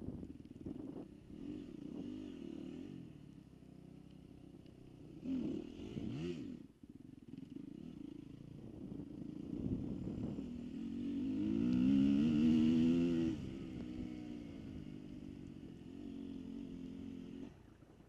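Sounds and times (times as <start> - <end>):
dirt bike engine revving: 5.2 - 6.6, 10.6 - 15.1.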